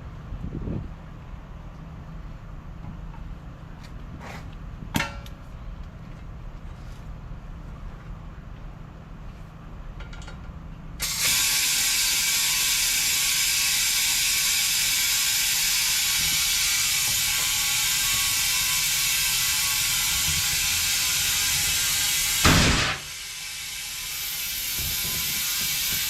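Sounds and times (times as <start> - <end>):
compressed air hissing: 11.0 - 26.0.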